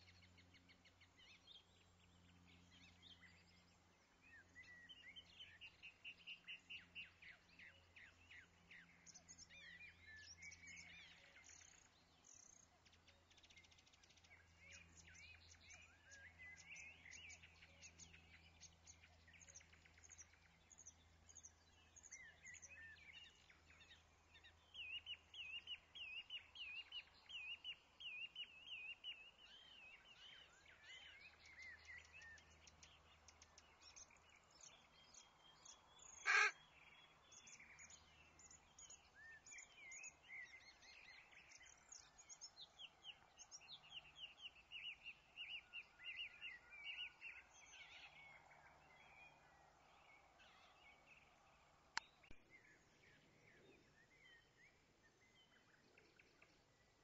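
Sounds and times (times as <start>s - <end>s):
small birds chirping: 0.0s - 57.0s
short loud noisy bird call: 36.2s - 36.6s.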